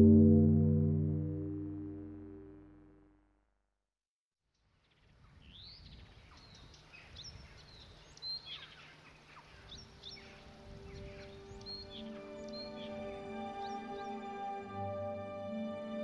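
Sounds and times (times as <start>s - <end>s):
low outdoor ambience: 0.0s - 2.9s
steady low musical tone: 0.0s - 3.0s
small birds chirping: 5.4s - 14.0s.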